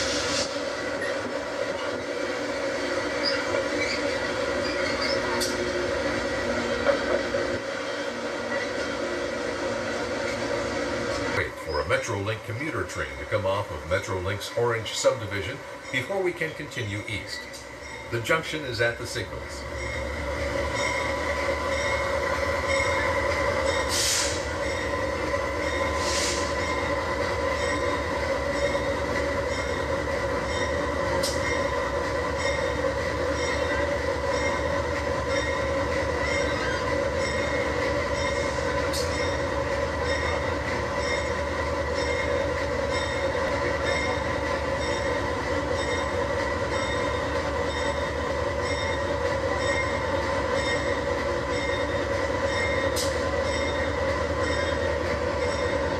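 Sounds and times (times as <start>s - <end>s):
train droning: 0.0s - 55.9s
high ringing squeal: 3.2s - 5.5s, 40.0s - 55.9s.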